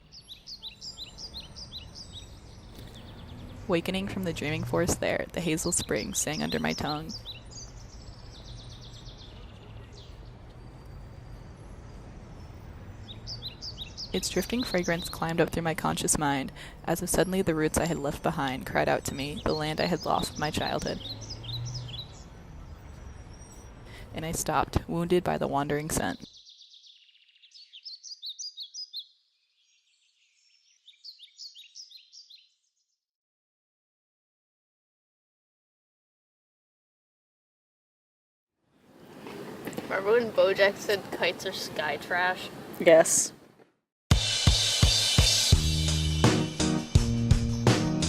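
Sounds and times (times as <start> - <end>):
songbird trilling: 0.0 - 16.2, 17.1 - 23.8, 26.2 - 32.6
bird chirp: 0.0 - 33.0.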